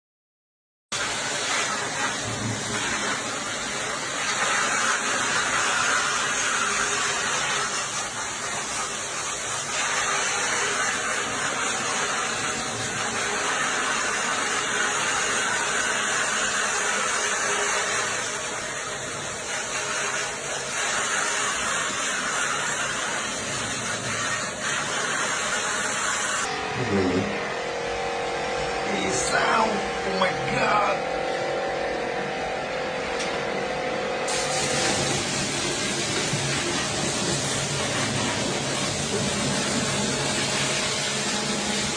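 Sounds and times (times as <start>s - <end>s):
hissing spray from cleaning equipment: 1.0s - 26.5s, 34.2s - 41.9s.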